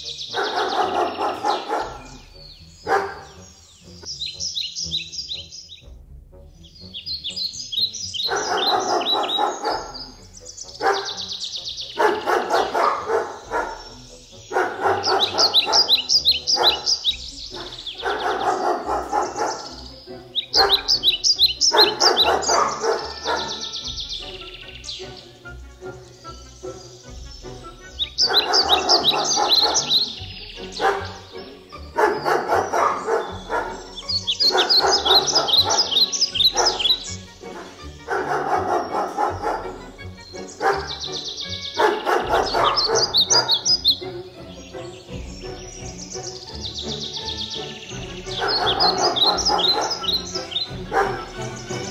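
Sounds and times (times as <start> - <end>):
background music: 0.0 - 51.9
high bird chirps: 0.0 - 51.9
dog vocalizing: 0.3 - 2.2, 2.9 - 3.4, 8.2 - 10.1, 10.8 - 11.3, 12.0 - 19.8, 20.4 - 23.7, 28.1 - 31.4, 32.0 - 39.9, 40.6 - 41.0, 41.8 - 43.8, 48.4 - 51.3.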